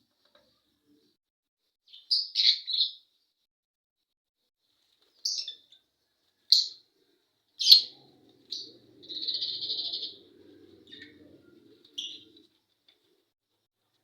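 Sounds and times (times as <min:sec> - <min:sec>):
lovebirds chirping: 0:05.2 - 0:05.8, 0:06.5 - 0:12.6.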